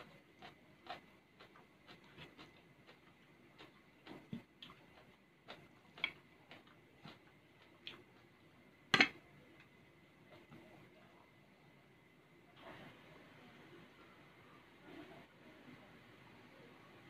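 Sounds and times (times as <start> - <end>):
chewing with soft mouth clicks: 0.0 - 8.5.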